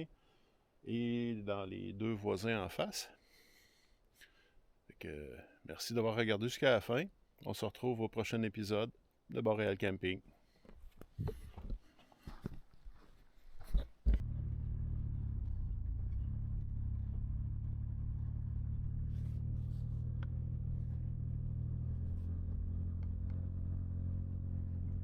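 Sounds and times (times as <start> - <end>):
vehicle engine running: 14.2 - 25.0.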